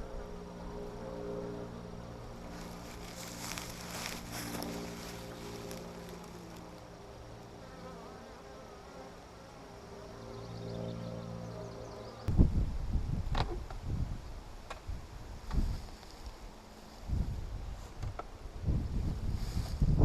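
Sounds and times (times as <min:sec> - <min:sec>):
honeybees buzzing: 0:00.0 - 0:12.3.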